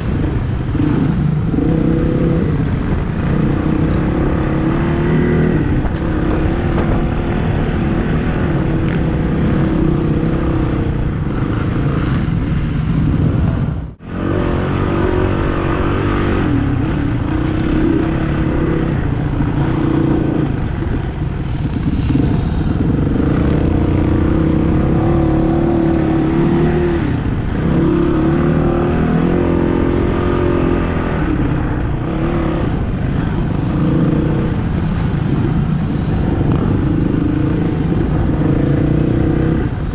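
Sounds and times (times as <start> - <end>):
dirt bike engine revving: 14.0 - 39.8.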